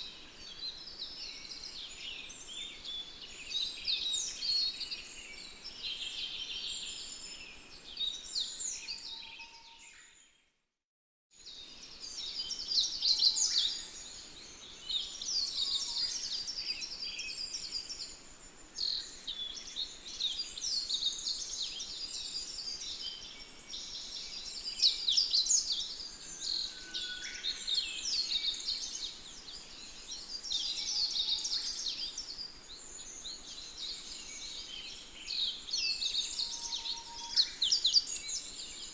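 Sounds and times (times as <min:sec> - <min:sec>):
small birds chirping: 0:11.4 - 0:38.9.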